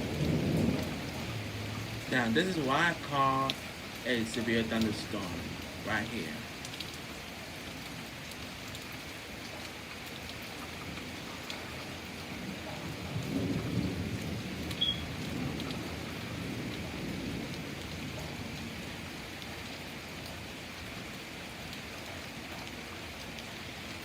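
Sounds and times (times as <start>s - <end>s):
thunder rumbling: 0.0s - 3.6s, 12.4s - 18.6s
steady rain falling: 0.0s - 24.0s.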